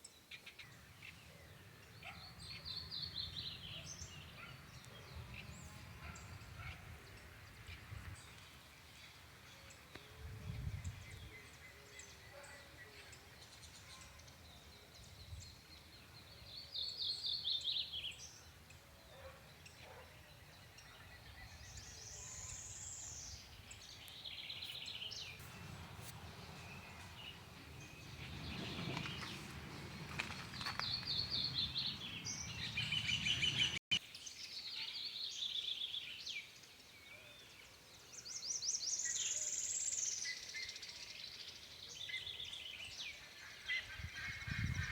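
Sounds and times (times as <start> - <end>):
small birds trilling: 0.0 - 33.9.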